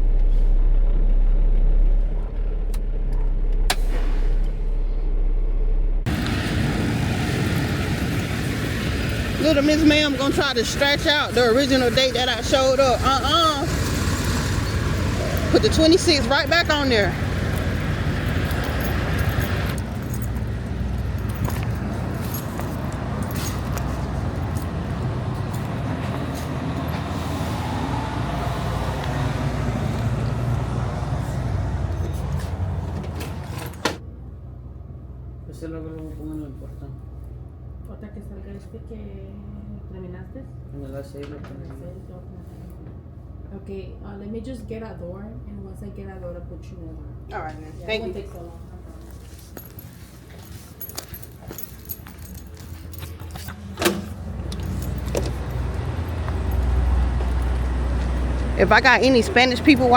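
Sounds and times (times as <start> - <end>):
loud rushing noise: 3.7 - 9.7
diesel truck engine idling: 4.8 - 34.4, 49.7 - 59.9.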